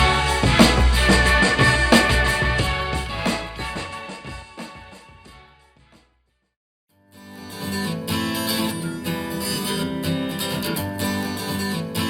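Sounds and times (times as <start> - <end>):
strummed acoustic guitar: 0.0 - 5.2, 7.0 - 12.0
bass: 0.0 - 6.2.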